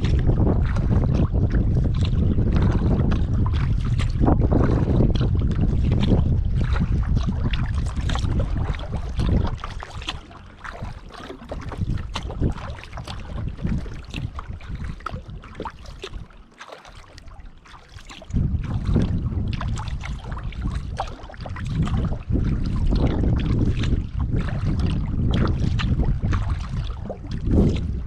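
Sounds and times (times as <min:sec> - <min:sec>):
wind rumble on microphone: 0:00.0 - 0:16.4, 0:17.0 - 0:28.0
paddle splashing water: 0:00.0 - 0:28.0.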